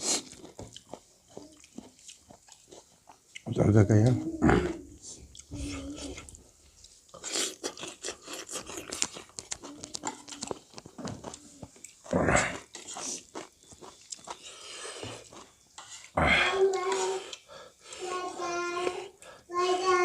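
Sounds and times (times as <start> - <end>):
chewing and lip smacks: 0.0 - 3.6, 5.0 - 16.2.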